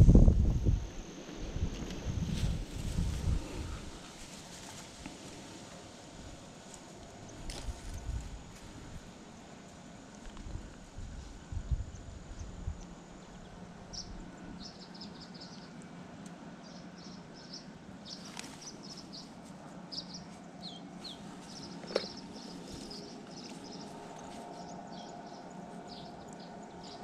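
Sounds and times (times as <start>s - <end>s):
faint steady hum: 0.0s - 27.0s
small birds chirping: 11.7s - 15.9s, 16.6s - 27.0s.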